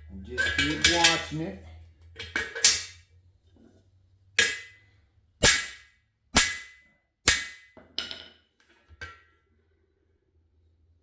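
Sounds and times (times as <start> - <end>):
hammer striking metal bar: 5.4 - 7.7.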